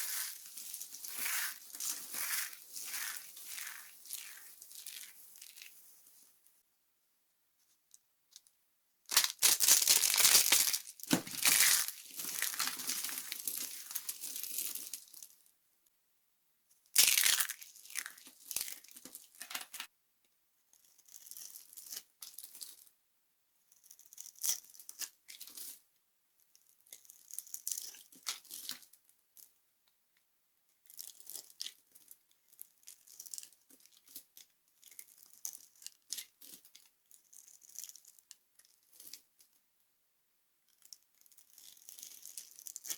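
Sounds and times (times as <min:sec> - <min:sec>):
dry soap crunching and crackling: 0:00.0 - 0:06.3, 0:09.1 - 0:15.5, 0:17.0 - 0:19.9, 0:26.5 - 0:29.0, 0:30.8 - 0:39.5, 0:40.7 - 0:42.9.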